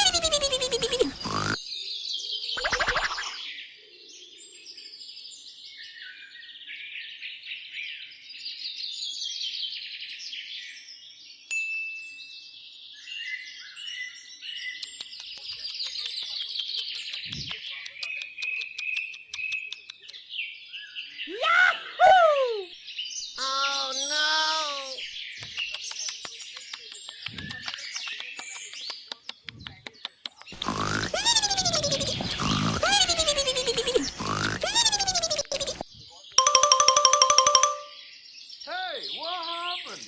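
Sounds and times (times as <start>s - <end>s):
birds chirping and singing: 12.7s - 21.9s, 22.7s - 40.0s
falling bird calls: 23.4s - 36.2s.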